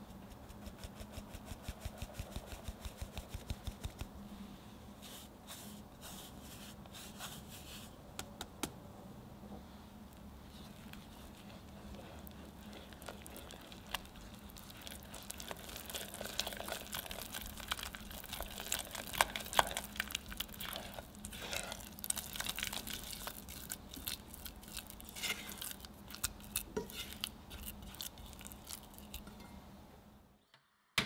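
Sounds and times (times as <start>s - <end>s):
dough crackling: 10.4s - 29.4s
spatula scraping a saucepan: 20.6s - 22.0s, 25.0s - 25.7s, 26.8s - 27.6s.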